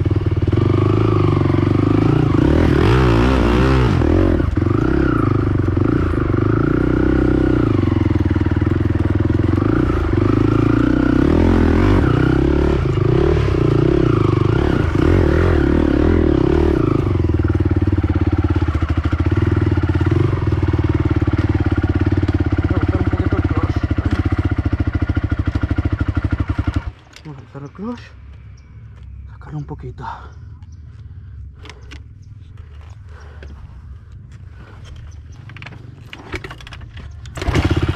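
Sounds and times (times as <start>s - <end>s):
quad engine revving and idling: 0.0s - 27.0s, 37.2s - 37.9s.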